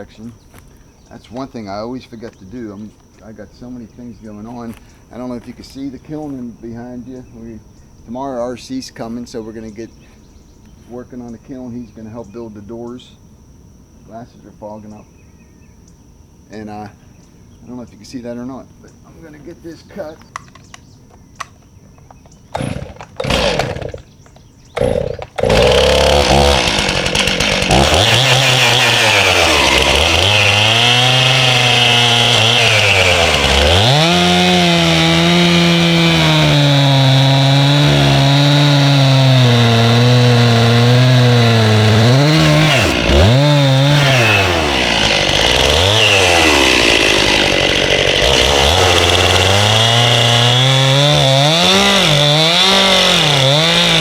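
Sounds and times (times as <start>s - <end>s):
chainsaw cutting log: 22.5s - 54.0s.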